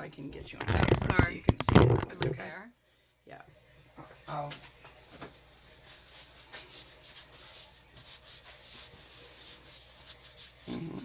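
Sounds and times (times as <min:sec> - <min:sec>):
hands rubbing and brushing tile: 0:00.4 - 0:02.4, 0:04.6 - 0:11.0.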